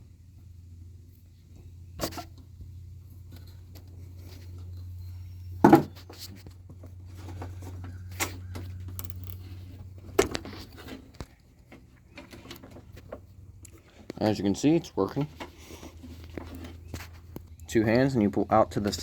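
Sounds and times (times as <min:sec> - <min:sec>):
low steady hum: 0:00.0 - 0:19.0
pliers and metal parts clicking: 0:08.8 - 0:09.6.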